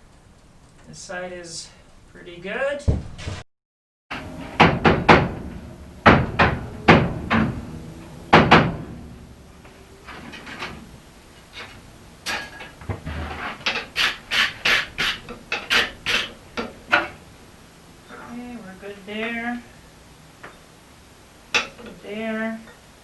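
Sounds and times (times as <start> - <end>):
hammer striking metal on anvil: 4.1 - 9.1.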